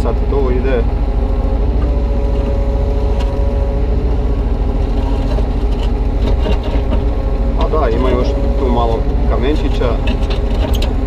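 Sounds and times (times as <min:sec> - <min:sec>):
excavator diesel engine: 0:00.0 - 0:11.0
steady higher tone: 0:00.8 - 0:04.8, 0:07.1 - 0:09.8.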